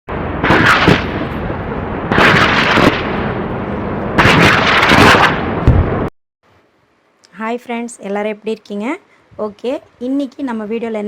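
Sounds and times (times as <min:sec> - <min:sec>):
loud noisy bursts: 0:00.1 - 0:06.1
steady rushing noise: 0:00.1 - 0:06.1.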